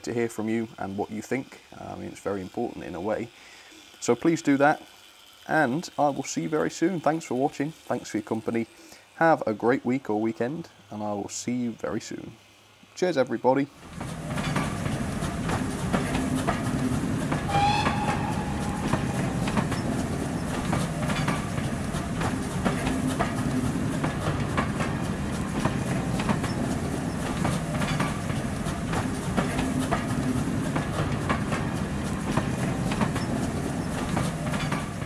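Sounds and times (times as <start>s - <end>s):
train wheels clicking over rail joints: 13.8s - 35.0s
train whistle blast: 17.4s - 20.6s.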